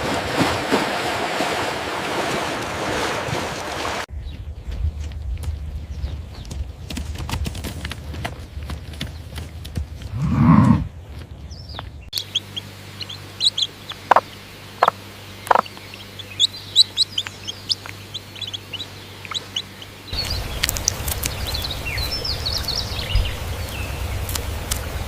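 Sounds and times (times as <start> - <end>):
birds chirping: 4.1 - 6.9, 8.0 - 25.0.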